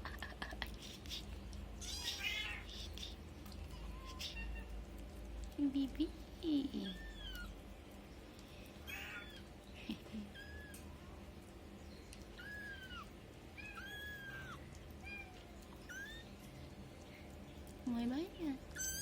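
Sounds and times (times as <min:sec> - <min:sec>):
kittens mewing: 0:00.8 - 0:04.9, 0:08.8 - 0:11.0, 0:12.3 - 0:16.4.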